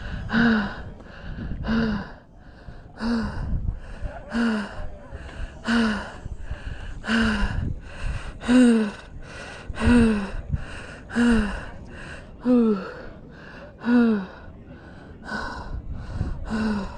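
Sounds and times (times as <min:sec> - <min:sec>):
heavy labored breathing: 0:00.0 - 0:16.9.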